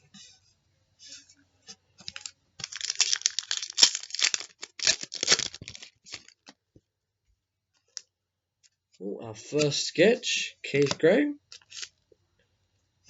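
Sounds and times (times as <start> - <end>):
foil wrapper tearing and crinkling: 2.0 - 6.5, 10.8 - 11.9.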